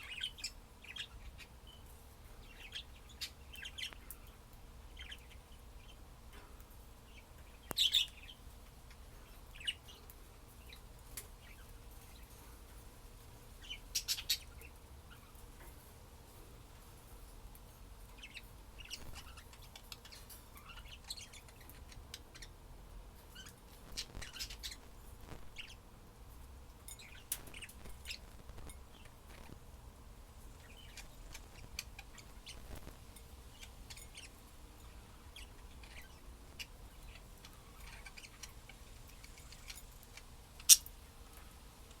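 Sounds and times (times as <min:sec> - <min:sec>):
budgerigars chirping: 0:00.0 - 0:06.0, 0:07.1 - 0:10.8, 0:13.6 - 0:15.4, 0:18.1 - 0:22.6, 0:23.3 - 0:25.8, 0:27.0 - 0:29.6, 0:30.6 - 0:40.9.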